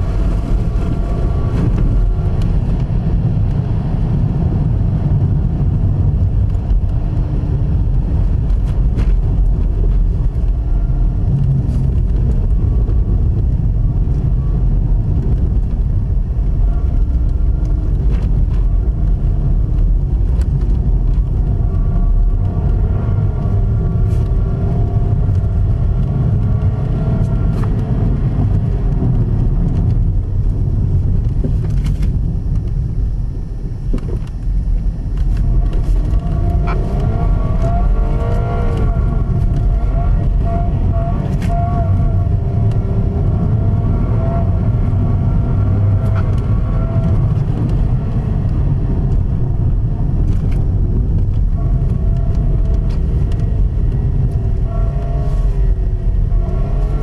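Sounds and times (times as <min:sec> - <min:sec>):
car engine revving: 0:00.0 - 0:32.7, 0:34.1 - 0:57.0.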